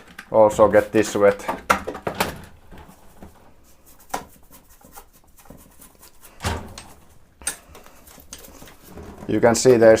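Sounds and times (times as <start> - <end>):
brushing and handling: 2.8 - 10.0.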